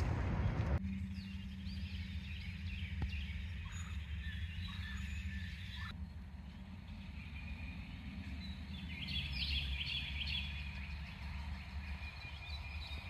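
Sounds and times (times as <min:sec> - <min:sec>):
steady low rumble: 0:00.0 - 0:13.0
bird warbling call: 0:01.8 - 0:06.0.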